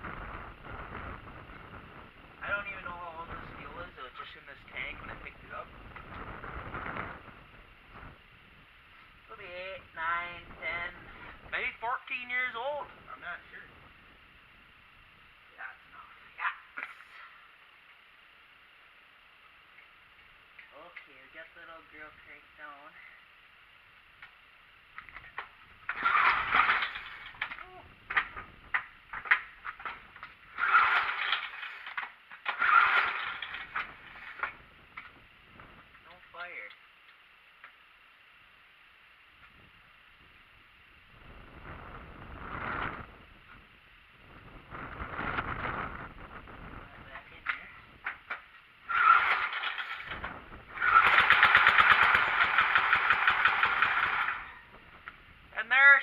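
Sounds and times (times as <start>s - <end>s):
small engine cranking: 25.8s - 34.6s, 48.9s - 54.7s.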